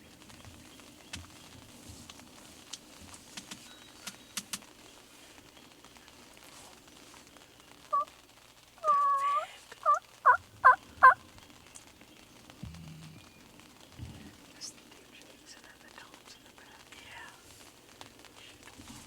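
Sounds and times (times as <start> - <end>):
faint clicks: 2.0 - 4.8
turkey yelping: 7.9 - 8.1, 8.8 - 11.2.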